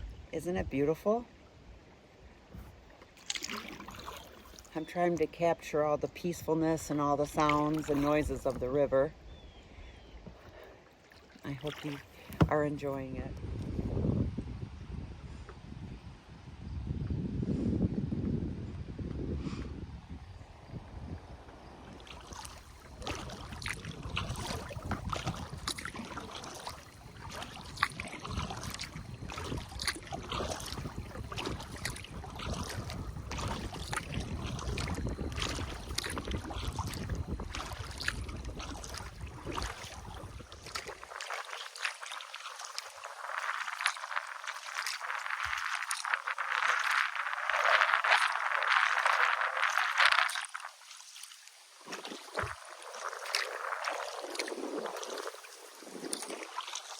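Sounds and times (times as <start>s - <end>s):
wind rumbling on microphone: 0.0s - 1.8s, 11.5s - 41.6s, 42.9s - 50.8s, 51.8s - 56.8s
paddle splashing water: 0.0s - 13.6s, 20.8s - 56.9s
rush of splashing water: 2.3s - 5.0s, 6.3s - 9.4s, 10.2s - 12.8s, 21.5s - 56.9s.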